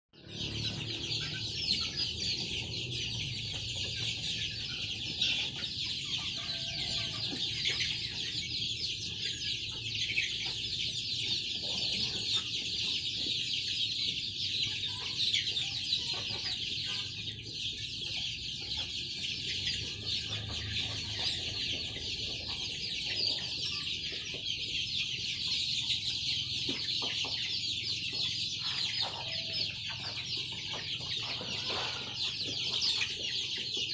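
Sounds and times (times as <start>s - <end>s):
chickens clucking and cheeping: 0.2s - 33.9s.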